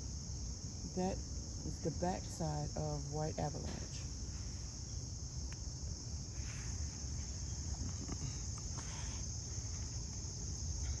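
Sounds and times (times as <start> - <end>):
insects chorus: 0.0 - 11.0
faint rustles: 3.6 - 5.6, 6.2 - 11.0.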